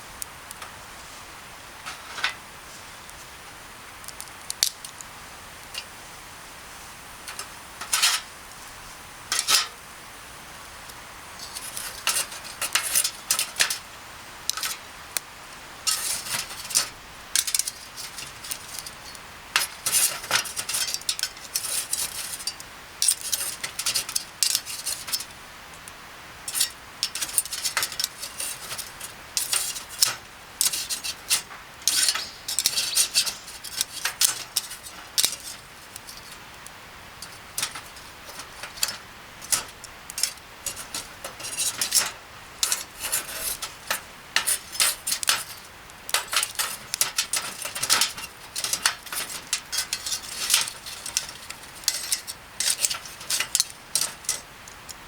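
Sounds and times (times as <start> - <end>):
utensils clinking on cookware: 7.3 - 8.3, 9.3 - 9.7, 11.4 - 13.9, 15.9 - 25.4, 26.5 - 36.4, 37.1 - 55.0.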